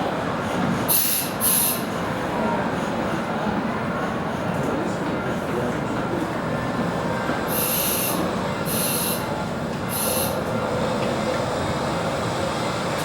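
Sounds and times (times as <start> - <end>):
rumble of running train: 0.0 - 13.0
train wheels squealing: 7.5 - 9.3, 9.9 - 10.4.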